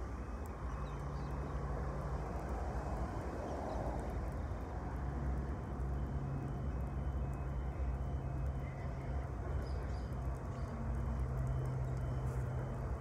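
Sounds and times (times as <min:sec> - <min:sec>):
diesel locomotive engine humming: 0:05.6 - 0:13.0.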